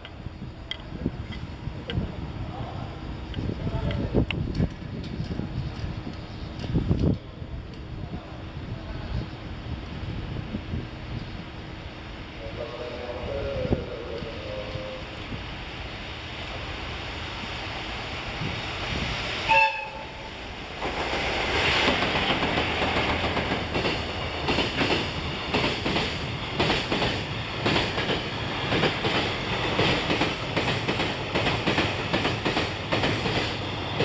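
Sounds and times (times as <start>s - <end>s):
locomotive horn blast: 19.5s - 20.3s
train wheels clattering over rail joints: 20.8s - 34.0s.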